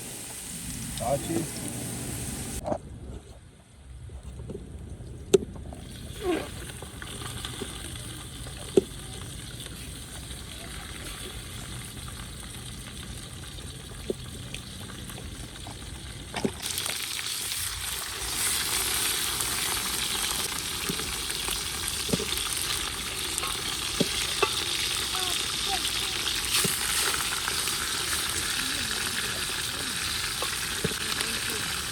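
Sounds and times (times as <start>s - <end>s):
food sizzling in oil: 16.6s - 31.9s.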